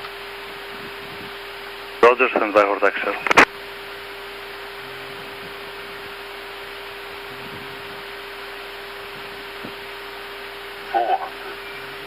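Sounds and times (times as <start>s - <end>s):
faint hum tone: 0.4s - 12.0s
radio static hiss: 2.0s - 3.6s, 7.1s - 8.3s, 8.9s - 12.0s.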